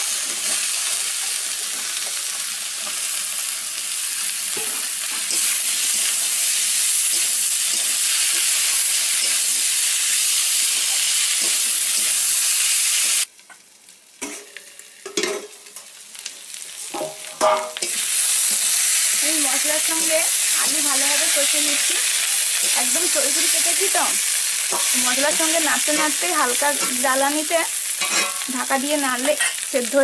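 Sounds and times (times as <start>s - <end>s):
potatoes sizzling in hot oil: 0.0s - 30.0s.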